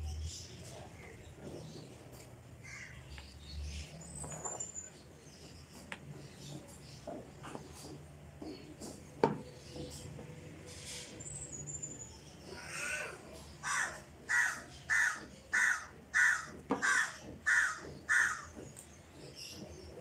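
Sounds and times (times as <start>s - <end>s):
bird calling: 12.5s - 18.8s.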